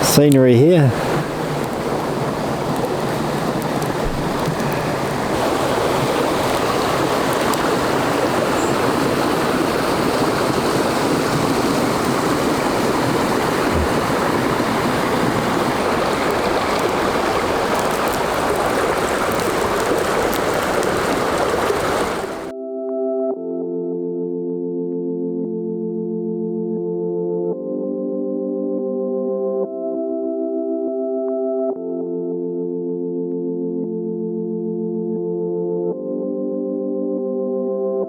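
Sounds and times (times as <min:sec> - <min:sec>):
creek water rushing: 0:00.0 - 0:22.5.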